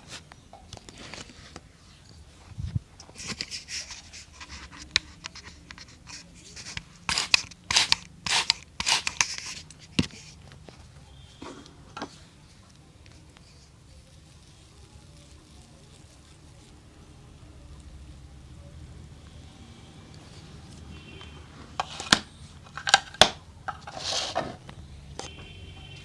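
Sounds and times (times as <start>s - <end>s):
scraping strokes on shoe: 3.3s - 10.4s.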